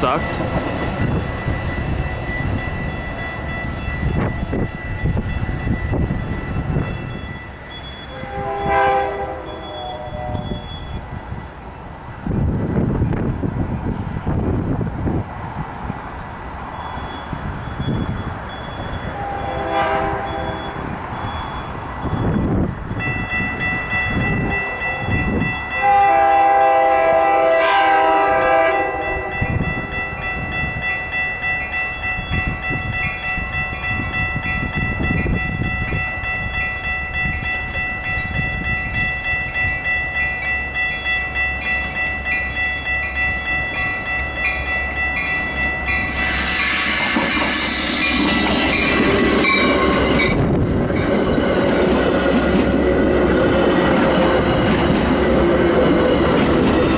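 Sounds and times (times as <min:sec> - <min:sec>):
steady high ringing: 0:00.0 - 0:11.5, 0:29.0 - 0:56.9
train clattering on rails: 0:00.0 - 0:26.4, 0:28.0 - 0:56.9
train horn chord: 0:08.1 - 0:10.7, 0:19.1 - 0:20.8, 0:25.8 - 0:29.7.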